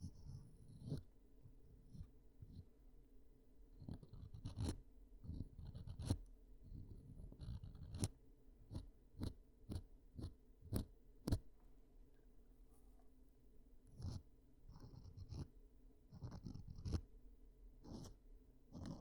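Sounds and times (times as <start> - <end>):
sharp clicks and scratches: 3.8 - 6.2, 7.2 - 11.4, 16.2 - 17.0, 18.8 - 19.0.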